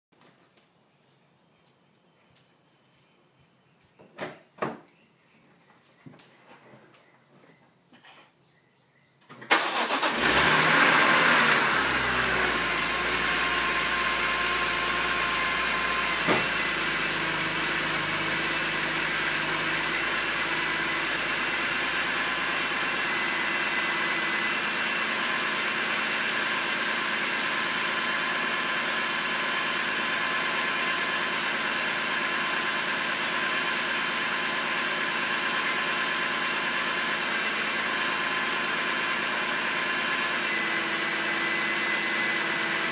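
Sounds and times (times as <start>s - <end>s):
car engine starting and idling: 9.2s - 42.9s.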